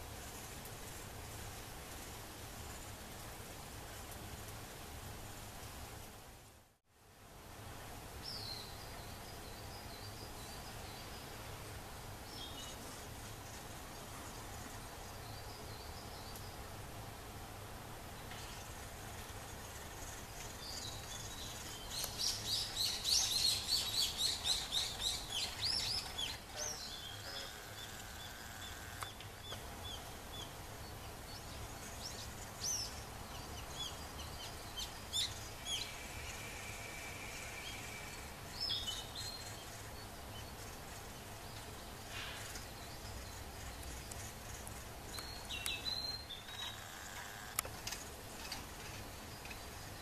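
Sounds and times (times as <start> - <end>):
outdoor background noise: 0.0 - 50.0
wild birds calling: 18.2 - 50.0.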